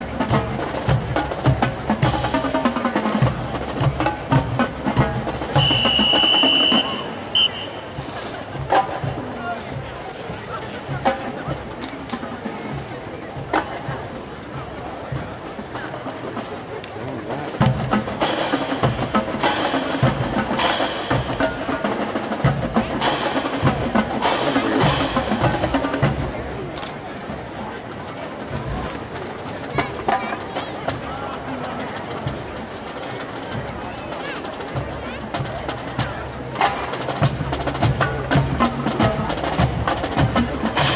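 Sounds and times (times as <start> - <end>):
marching band music: 0.0 - 40.9
quick drum strokes: 0.0 - 40.9
snare drum cadence: 4.9 - 8.5.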